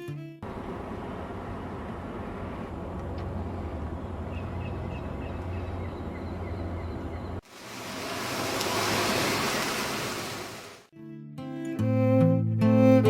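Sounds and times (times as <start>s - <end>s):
low engine rumble: 0.4s - 10.7s
wave hissing: 7.4s - 10.9s.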